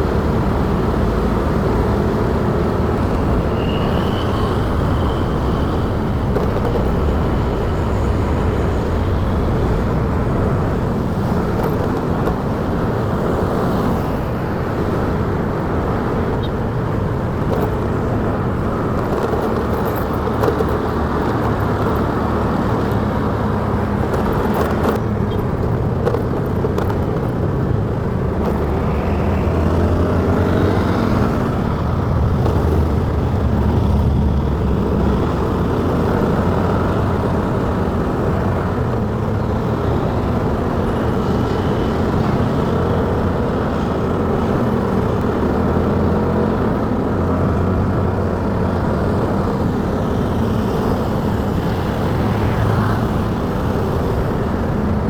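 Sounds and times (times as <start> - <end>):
road and wind noise: 0.0 - 55.0.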